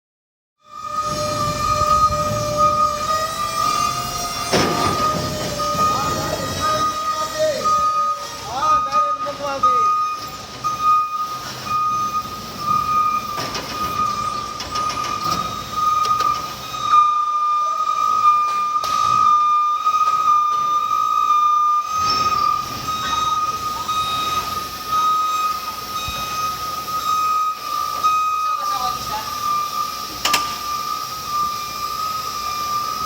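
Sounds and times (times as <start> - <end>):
high-pitched whine: 0.6 - 33.0
low mechanical rumble: 0.7 - 18.2.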